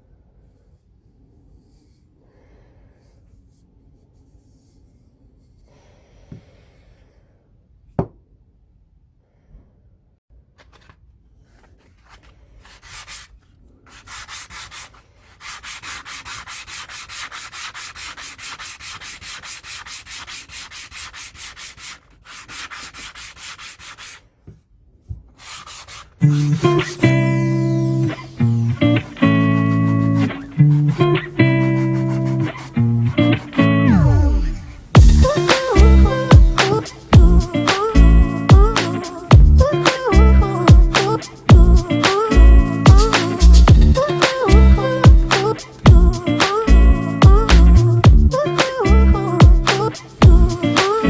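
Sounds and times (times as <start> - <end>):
hand-sanding wood: 12.7 - 24.2, 25.4 - 27.1, 28.9 - 33.6, 35.0 - 42.4, 43.0 - 46.6, 49.6 - 51.0.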